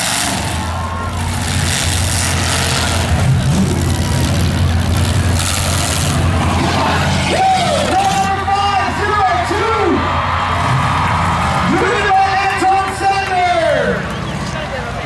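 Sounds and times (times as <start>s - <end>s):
loud car engine running: 0.0s - 15.0s.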